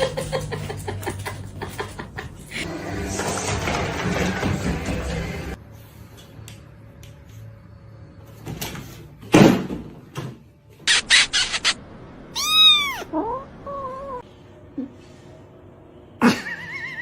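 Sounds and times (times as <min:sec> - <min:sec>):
cat meowing: 0:12.3 - 0:14.2.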